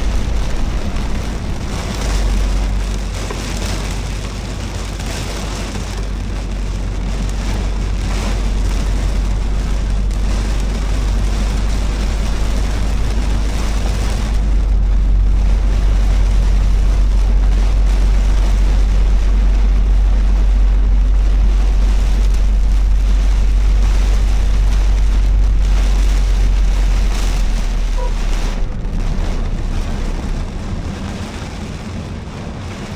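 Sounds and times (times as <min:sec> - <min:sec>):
rain hiss and tyre spray: 0:00.0 - 0:32.9
road and wind rumble: 0:00.0 - 0:32.9.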